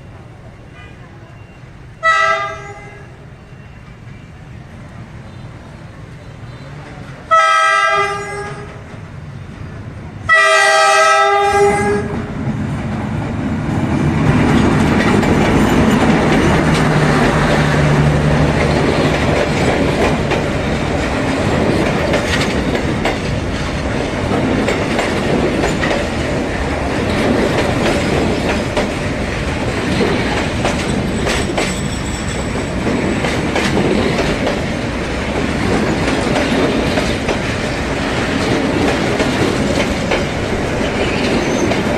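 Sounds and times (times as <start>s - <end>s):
train horn blast: 2.0s - 3.2s, 7.3s - 8.8s, 10.3s - 12.2s
train wheels rumbling on rails: 3.3s - 41.9s.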